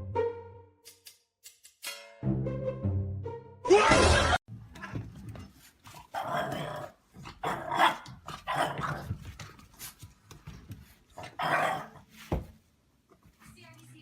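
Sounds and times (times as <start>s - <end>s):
dog growling and barking: 6.0s - 9.2s, 11.2s - 12.0s.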